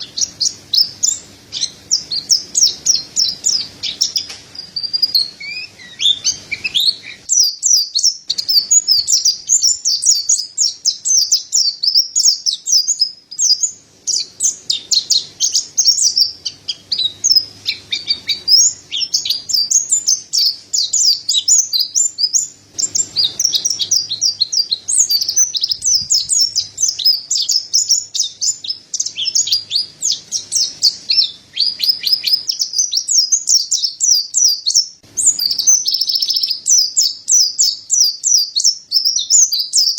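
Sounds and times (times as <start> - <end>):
bird singing high chirps and trills: 0.0 - 39.9.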